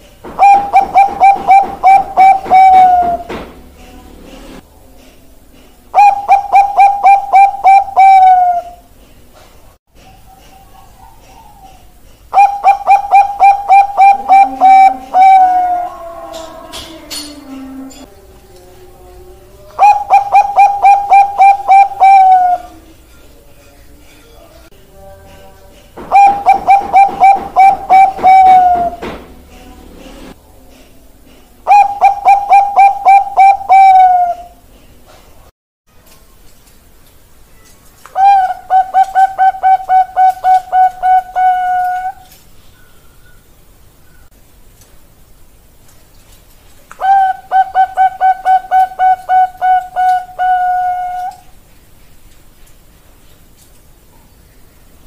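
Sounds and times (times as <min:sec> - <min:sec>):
dove cooing: 0:00.0 - 0:03.4, 0:05.9 - 0:09.0, 0:10.0 - 0:23.0, 0:26.0 - 0:29.2, 0:31.7 - 0:34.6, 0:38.2 - 0:42.4, 0:47.0 - 0:51.5.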